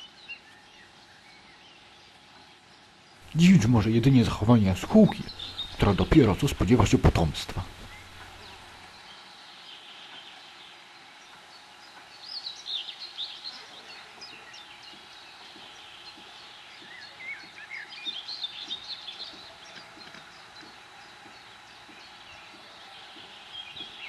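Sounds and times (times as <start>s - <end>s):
faint outdoor hiss: 0.0s - 24.0s
songbirds chirping: 0.0s - 24.0s.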